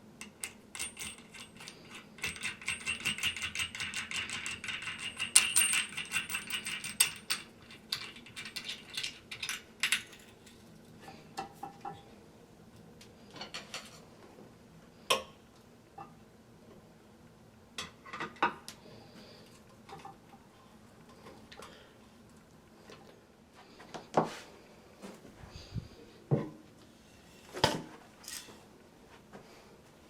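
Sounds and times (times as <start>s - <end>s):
small metal hardware clinking: 0.2s - 10.6s.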